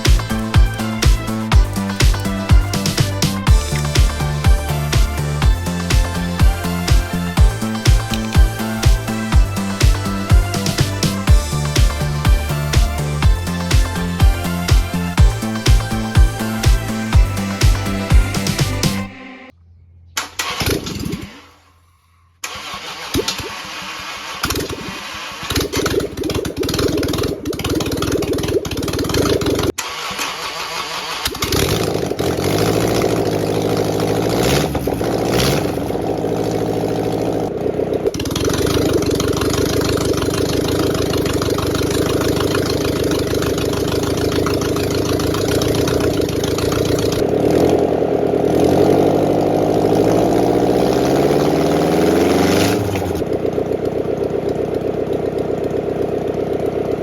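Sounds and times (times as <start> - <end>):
diesel boat engine running: 0.0 - 19.3, 31.4 - 57.0.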